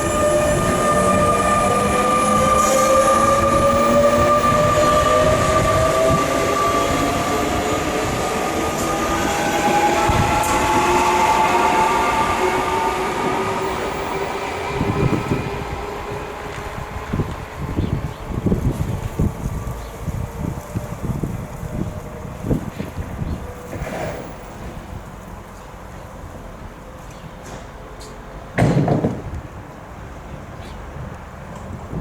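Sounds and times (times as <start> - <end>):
train traction motors whining: 0.0 - 23.7
wheels rumbling on rail: 0.0 - 32.0.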